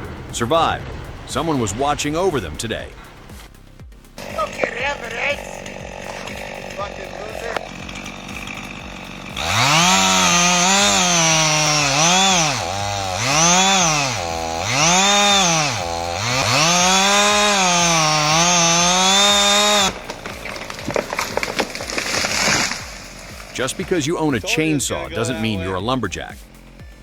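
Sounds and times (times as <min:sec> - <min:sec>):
irregular crackling: 0:04.2 - 0:24.0
chainsaw cutting wood: 0:04.2 - 0:24.4.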